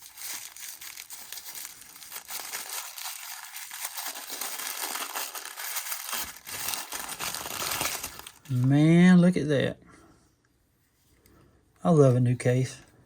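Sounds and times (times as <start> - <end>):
packaging crinkling: 0.0 - 8.7.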